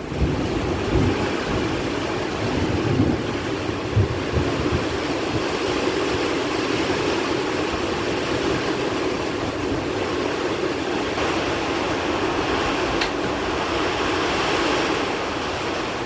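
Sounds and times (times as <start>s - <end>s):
wind thumps on microphone: 0.0s - 5.8s
heavy rain in strong wind: 0.0s - 16.0s.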